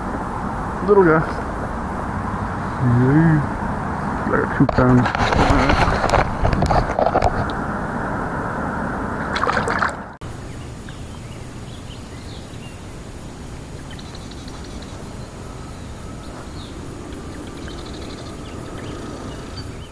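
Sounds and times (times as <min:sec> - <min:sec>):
loud rush of noise: 0:00.0 - 0:19.9
bird chirps and trills: 0:10.3 - 0:19.9.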